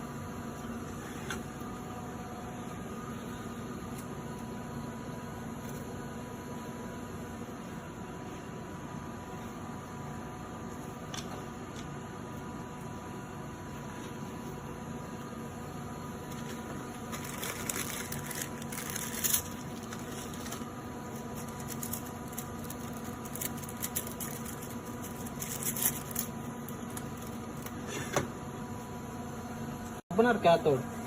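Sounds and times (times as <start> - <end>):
steady electrical hum: 0.0 - 31.0
crackly rustling: 16.2 - 27.7.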